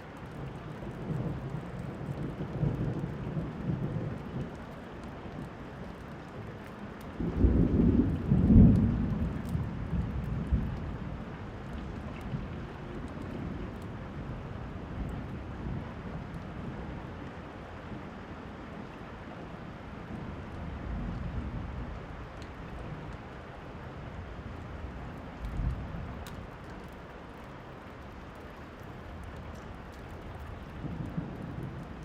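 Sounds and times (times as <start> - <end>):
steady rain: 0.0 - 32.0
thunder rumbles: 0.2 - 17.1, 24.1 - 32.0
fireplace crackles: 24.4 - 32.0.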